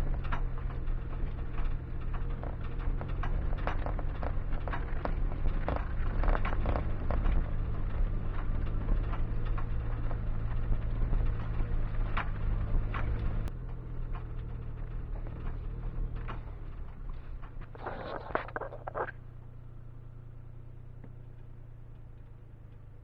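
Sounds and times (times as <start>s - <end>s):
clicks and rattles: 0.0s - 19.4s
car engine running: 0.0s - 23.0s.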